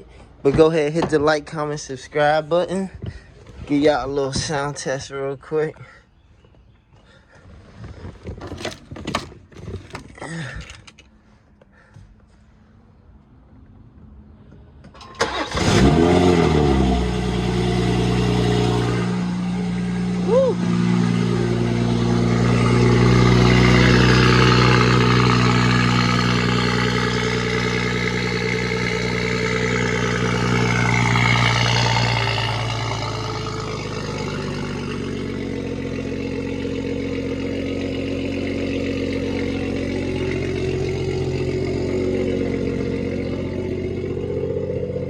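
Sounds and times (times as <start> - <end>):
car engine idling: 13.2 - 45.0.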